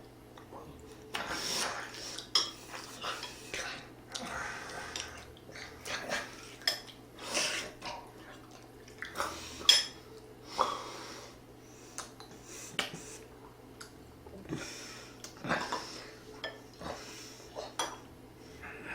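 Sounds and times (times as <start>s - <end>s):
utensils clinking on a dish: 9.6s - 10.0s.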